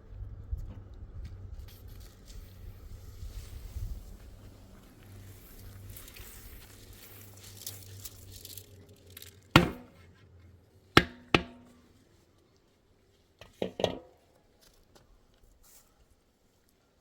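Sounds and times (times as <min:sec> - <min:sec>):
hard objects knocking together: 0:09.6 - 0:10.0.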